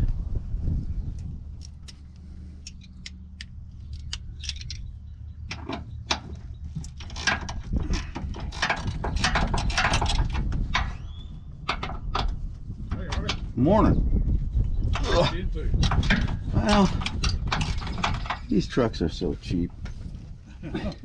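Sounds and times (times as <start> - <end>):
low steady rumble: 0.0 - 21.0
metal tools clinking and rattling: 3.8 - 11.0, 15.0 - 18.8.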